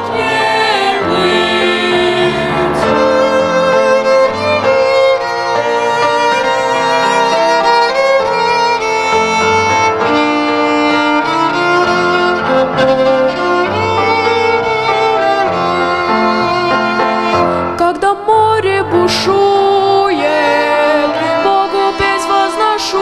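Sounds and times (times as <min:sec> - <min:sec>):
accompaniment with bass notes: 0:00.0 - 0:05.0
violin playing slow melody: 0:00.0 - 0:17.8, 0:19.8 - 0:23.0.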